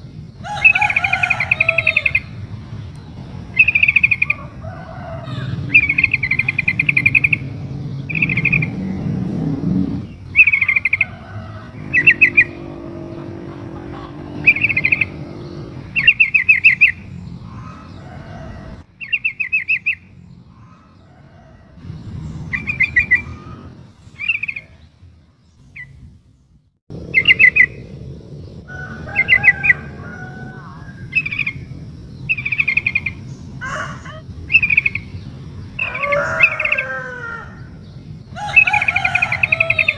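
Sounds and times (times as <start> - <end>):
low background rumble: 0.0 - 19.0, 19.9 - 39.9
bird chattering calls: 3.5 - 18.1.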